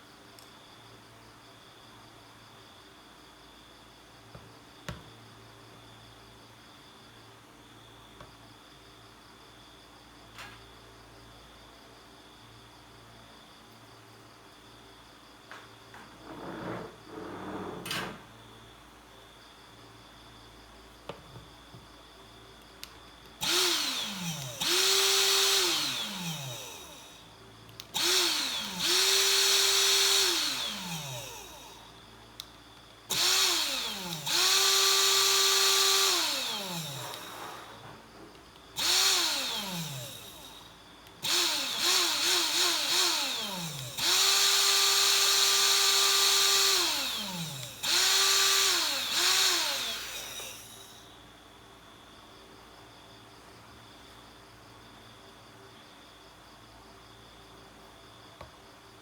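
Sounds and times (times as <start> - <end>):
electric blower motor whining: 23.4 - 27.2, 27.9 - 31.9, 33.1 - 37.9, 38.8 - 51.0.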